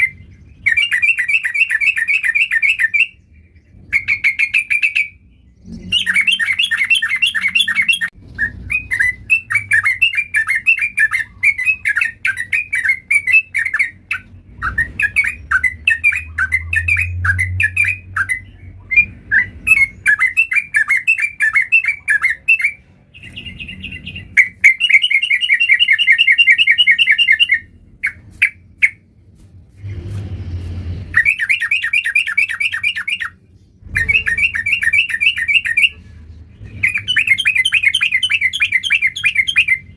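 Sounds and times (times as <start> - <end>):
bulbul singing chattering notes: 5.8 - 29.0.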